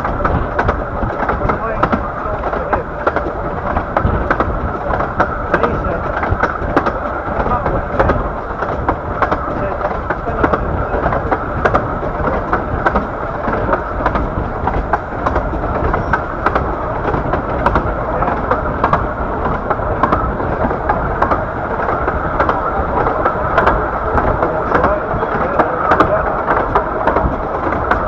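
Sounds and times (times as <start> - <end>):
miniature train rolling rumble: 0.0 - 28.0
wheels clicking on track: 0.0 - 28.0.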